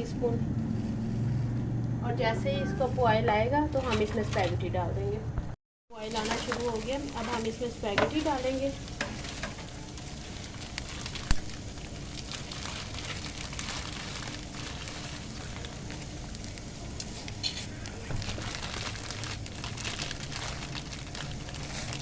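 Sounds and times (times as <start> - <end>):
water boiling in a pot: 6.0 - 22.0.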